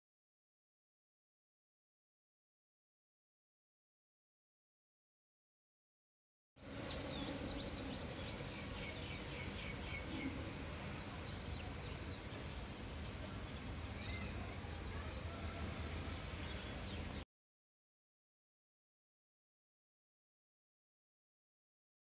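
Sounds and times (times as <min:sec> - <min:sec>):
outdoor air background noise: 0:06.6 - 0:17.2
small birds chirping: 0:06.6 - 0:17.2.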